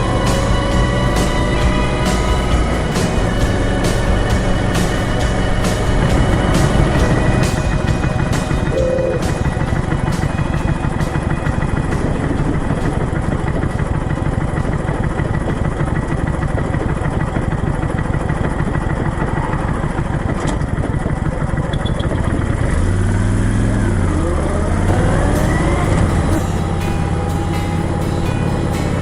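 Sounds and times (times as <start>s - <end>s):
heavy wind noise: 0.0s - 15.8s
motorcycle engine running: 0.0s - 29.0s.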